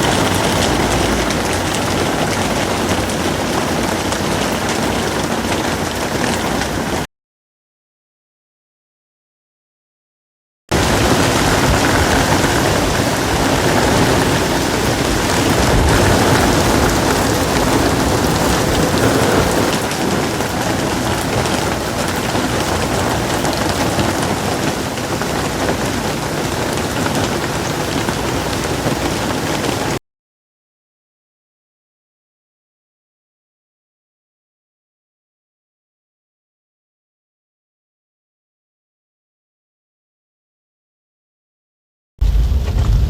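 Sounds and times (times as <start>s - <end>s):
heavy rain: 0.0s - 7.1s, 10.7s - 30.0s, 42.2s - 43.0s.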